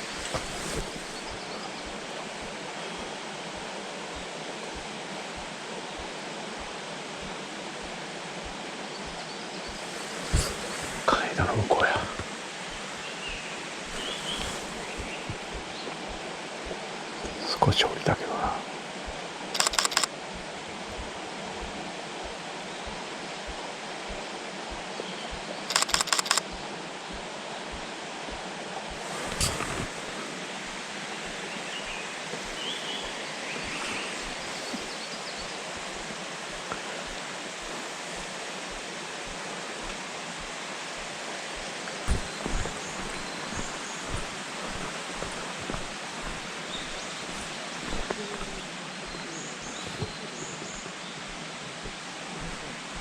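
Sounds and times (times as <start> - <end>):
camera shutter rapid clicks: 19.6 - 20.1, 25.7 - 26.4
short bird calls: 41.8 - 50.7.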